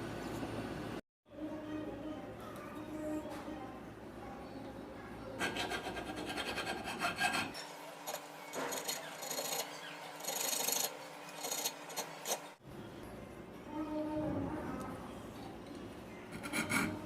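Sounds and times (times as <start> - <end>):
file rasping back and forth: 5.4 - 12.5, 16.4 - 17.0.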